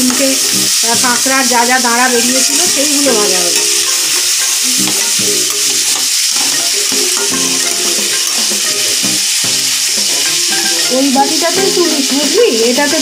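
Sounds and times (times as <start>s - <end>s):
crab frying in hot oil: 0.0s - 13.0s
spatula stirring in pan: 0.0s - 13.0s.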